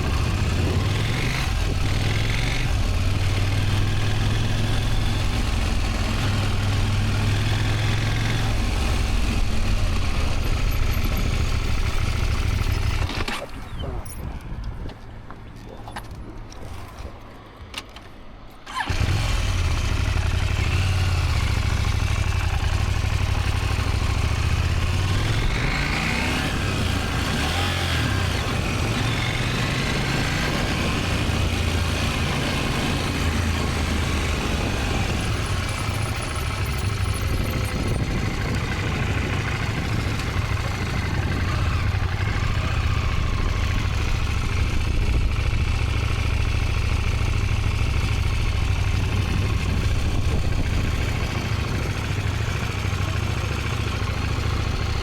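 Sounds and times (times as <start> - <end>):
motorcycle engine starting and revving: 0.0 - 14.2, 17.8 - 55.0.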